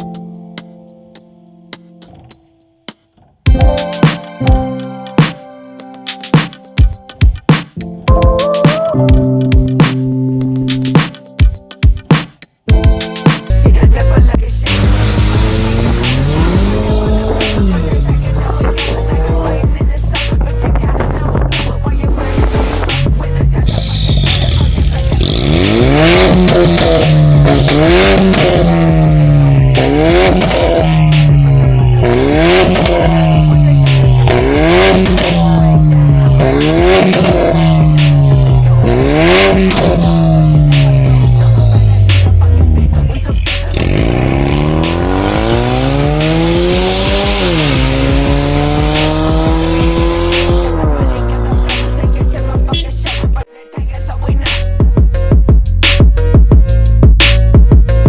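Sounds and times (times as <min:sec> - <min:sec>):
car engine revving: 0:02.0 - 0:02.4, 0:03.1 - 0:03.8, 0:14.6 - 0:53.2.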